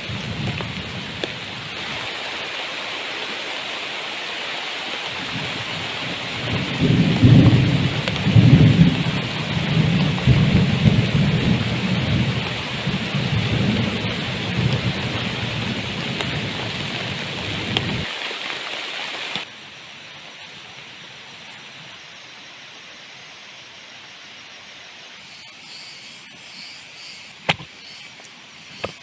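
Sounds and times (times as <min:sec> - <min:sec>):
heavy rain pouring: 0:00.0 - 0:22.8
low thunder rumble: 0:05.2 - 0:18.1.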